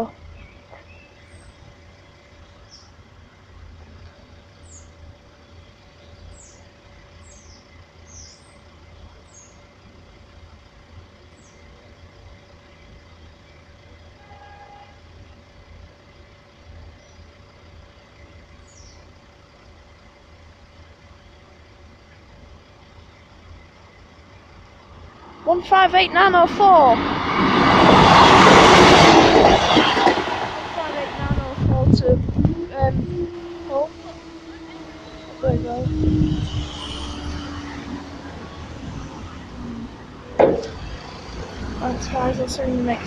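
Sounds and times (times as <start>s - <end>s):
vehicle engines rumbling: 0.0s - 43.0s
high falling chirps: 25.4s - 41.4s.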